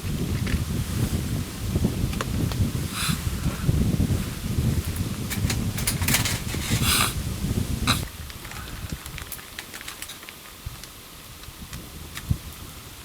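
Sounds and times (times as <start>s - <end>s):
wind on microphone: 0.0s - 9.4s, 10.6s - 13.0s
campfire crackling: 0.0s - 13.0s
short rustles: 4.1s - 7.2s.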